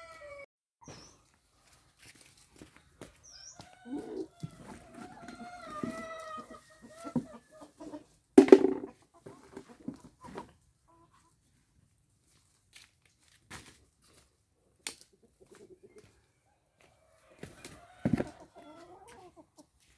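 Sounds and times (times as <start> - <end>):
rooster crowing: 0.0 - 0.5, 17.1 - 18.8
chickens clucking: 3.1 - 11.5, 15.0 - 19.9.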